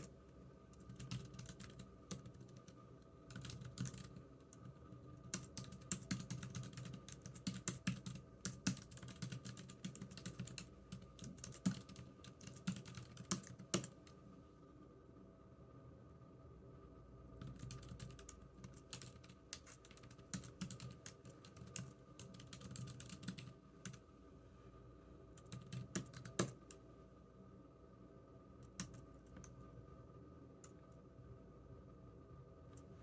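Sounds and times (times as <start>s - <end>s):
keyboard typing clicks: 0.8s - 14.2s, 25.4s - 26.8s, 28.6s - 29.6s.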